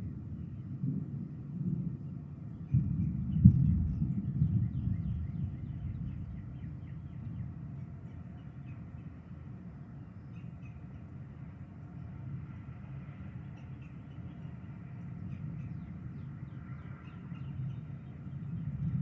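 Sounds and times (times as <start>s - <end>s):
low thunder rumble: 0.0s - 7.8s, 15.2s - 19.0s.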